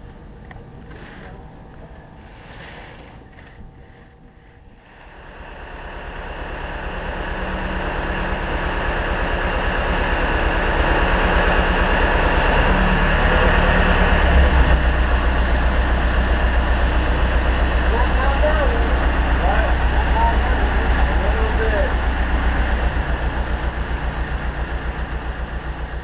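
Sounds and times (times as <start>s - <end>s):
large engine running: 0.0s - 26.0s.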